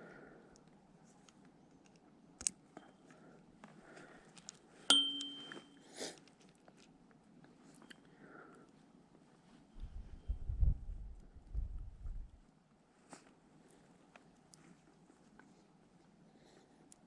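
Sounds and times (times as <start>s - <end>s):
metallic clink: 4.9s - 5.8s.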